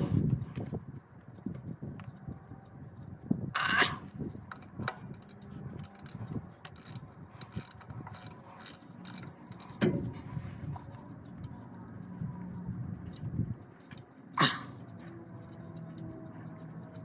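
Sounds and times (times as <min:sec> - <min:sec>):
ratchet wrench clicking: 0:04.5 - 0:10.1.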